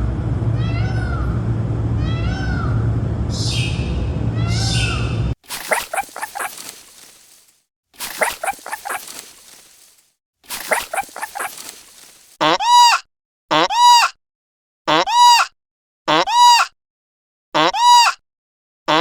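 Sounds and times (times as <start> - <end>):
high clear rising falling calls: 2.0 - 12.4
rapid animal calls with echo: 2.1 - 12.4.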